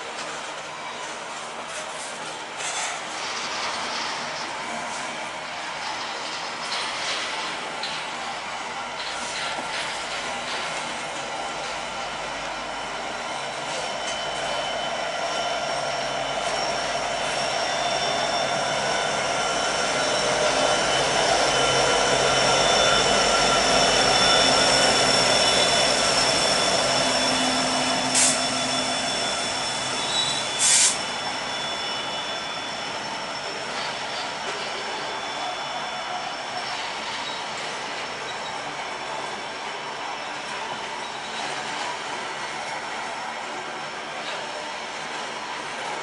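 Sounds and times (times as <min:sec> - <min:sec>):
diesel locomotive engine: 0:00.0 - 0:46.0.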